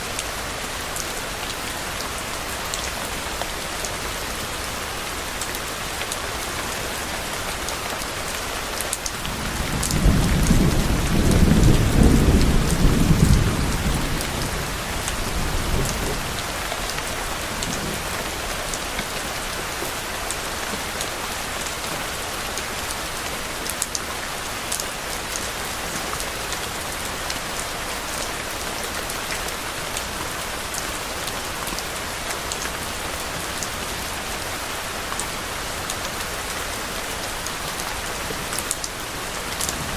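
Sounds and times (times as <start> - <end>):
steady rain falling: 0.0 - 39.9
low roll of thunder: 9.2 - 16.6.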